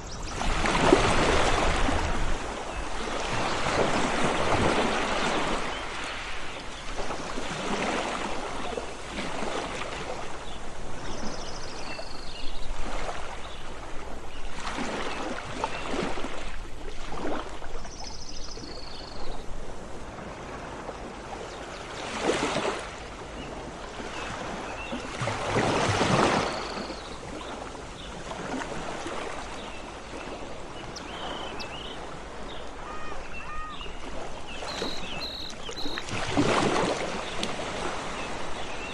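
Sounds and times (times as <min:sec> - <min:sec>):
sea waves washing in: 0:00.0 - 0:11.2, 0:19.5 - 0:38.9
high bird chirps: 0:34.6 - 0:36.1.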